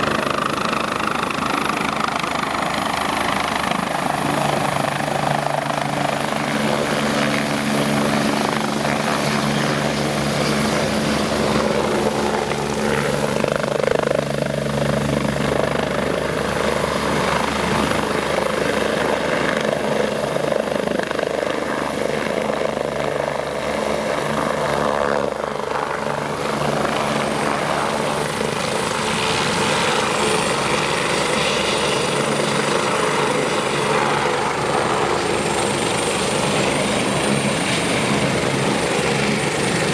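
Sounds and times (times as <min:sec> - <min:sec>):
high turbine whine: 0:00.0 - 0:21.3
helicopter engines and rotors: 0:00.0 - 0:39.9.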